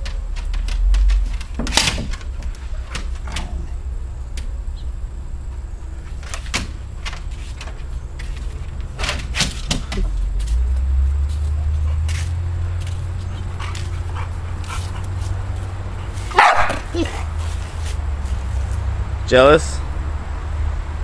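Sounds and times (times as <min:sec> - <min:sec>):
steady low rumble: 0:00.0 - 0:21.0
dog barking: 0:16.3 - 0:17.4.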